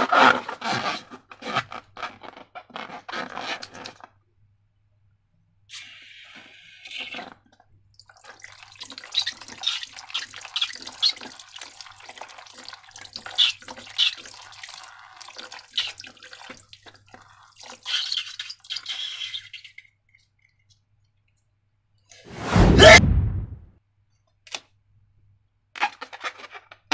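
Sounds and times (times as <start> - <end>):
sudden loud burst: 22.3 - 23.6.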